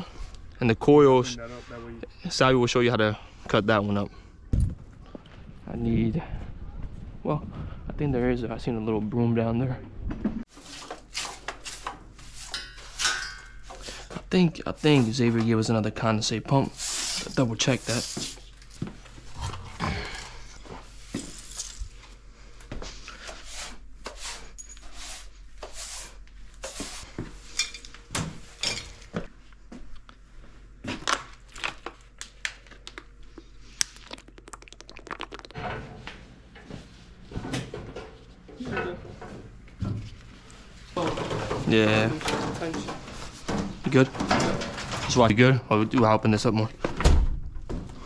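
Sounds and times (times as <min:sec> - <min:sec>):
metal tools clinking and clanking: 0:12.5 - 0:13.8.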